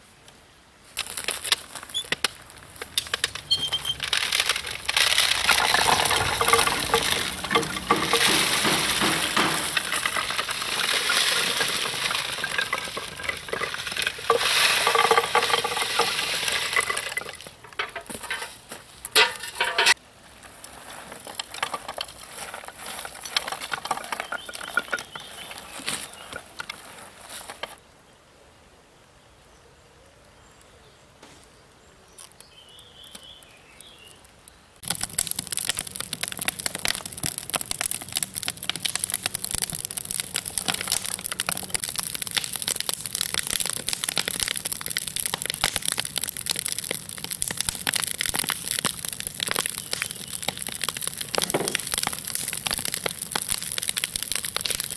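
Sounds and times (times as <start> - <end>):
ore crackling over a fire: 0.8 - 27.8, 32.2 - 54.9.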